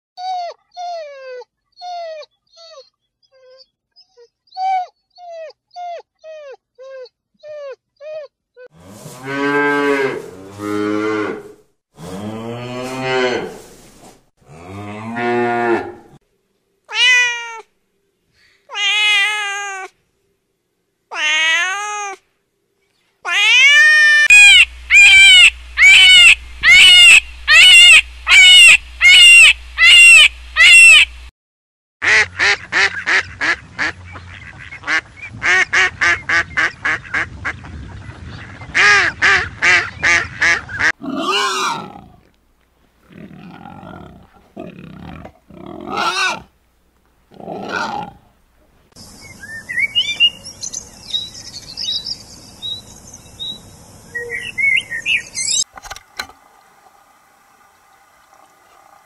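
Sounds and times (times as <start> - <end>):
cow mooing: 8.7 - 13.6, 14.5 - 16.2
animal rising calls: 23.4 - 31.1
rapid loud repeated calls: 24.2 - 31.3
low hum: 24.3 - 31.3.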